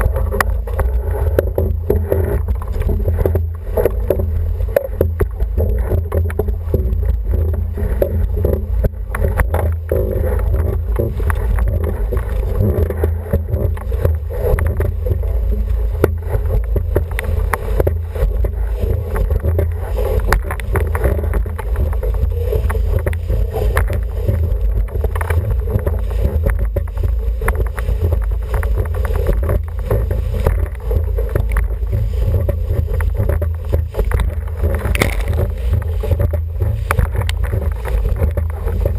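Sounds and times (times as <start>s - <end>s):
water rushing along boat hull: 0.0s - 38.9s
wind buffeting microphone: 0.0s - 38.9s.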